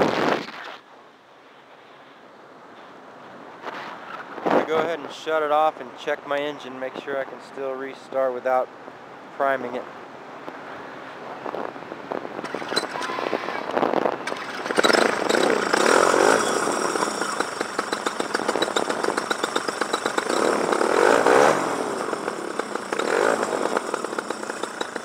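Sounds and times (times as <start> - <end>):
two-stroke engine running: 12.4 - 13.6, 14.2 - 25.0.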